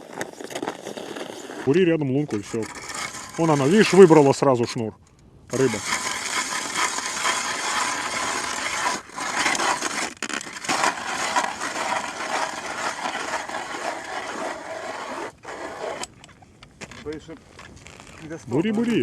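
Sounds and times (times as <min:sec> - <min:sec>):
ice auger grinding through ice: 0:00.0 - 0:04.3, 0:05.5 - 0:16.2.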